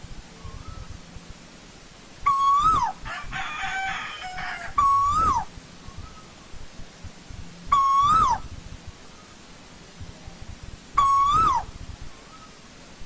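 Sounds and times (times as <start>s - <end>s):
bird whistled calls: 0.4s - 1.0s, 2.2s - 3.0s, 3.7s - 6.3s, 7.7s - 8.5s, 11.0s - 11.7s.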